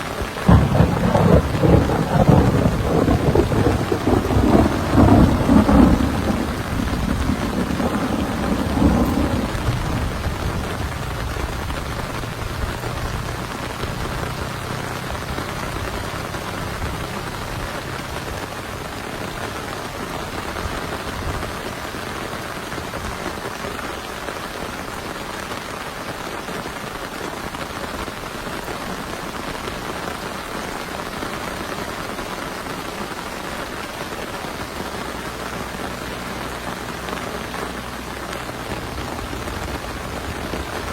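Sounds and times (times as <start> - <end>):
heavy rain falling: 0.0 - 40.9
thunder rolling: 0.2 - 22.0, 36.5 - 40.9.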